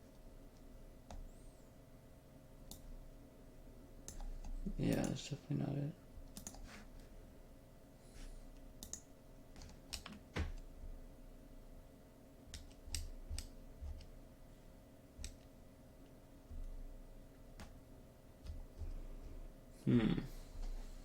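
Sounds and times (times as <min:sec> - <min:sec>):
faint electrical hum: 0:00.0 - 0:21.0
mouse and keyboard clicks: 0:06.3 - 0:06.7.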